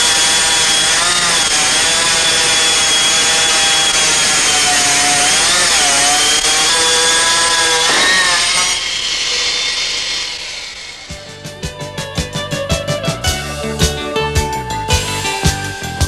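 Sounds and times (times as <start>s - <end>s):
stone-cutting disc whining: 0.0s - 11.4s.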